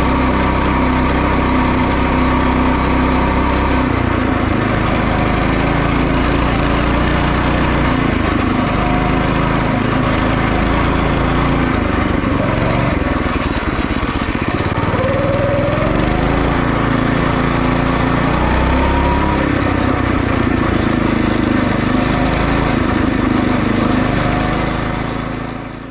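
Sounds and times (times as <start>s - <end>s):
mini motorcycle engine revving: 0.0s - 25.9s.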